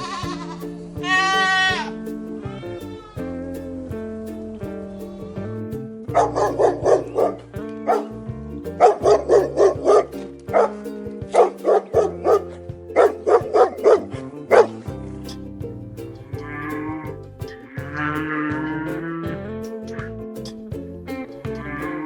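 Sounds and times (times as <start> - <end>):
background music: 0.0 - 22.0
dog barking: 7.9 - 8.1.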